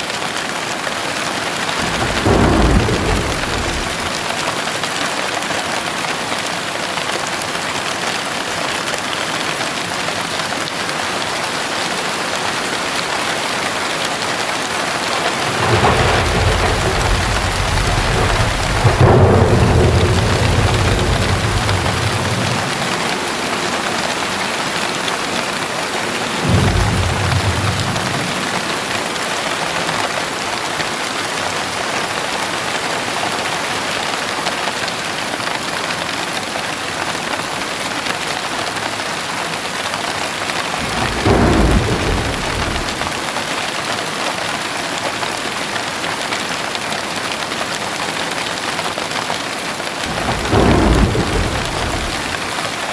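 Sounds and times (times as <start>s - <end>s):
heavy rain falling: 0.0s - 52.9s
thunder rumbling: 1.8s - 4.5s, 14.5s - 29.6s, 40.6s - 43.4s, 50.0s - 52.7s.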